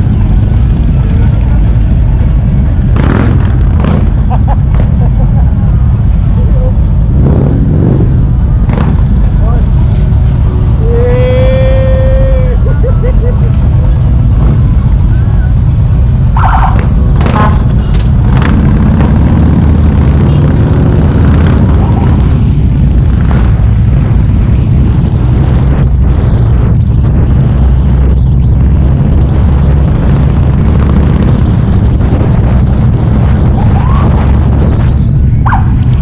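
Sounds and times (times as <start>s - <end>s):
motorcycle engine rumbling: 0.0s - 36.0s
wind noise on microphone: 16.7s - 36.0s.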